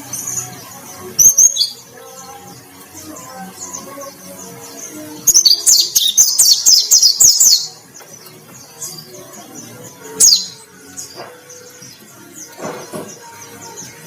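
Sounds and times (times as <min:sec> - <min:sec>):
bird high rapid chirps: 0:00.0 - 0:14.0
faint background music: 0:00.0 - 0:14.0.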